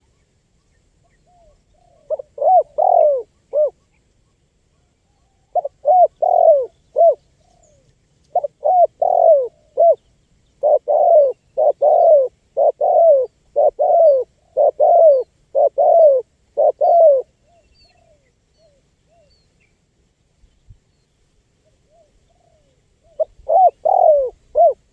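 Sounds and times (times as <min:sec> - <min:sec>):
dove cooing: 0:01.2 - 0:03.8, 0:05.2 - 0:10.0, 0:10.6 - 0:19.3, 0:21.9 - 0:24.9.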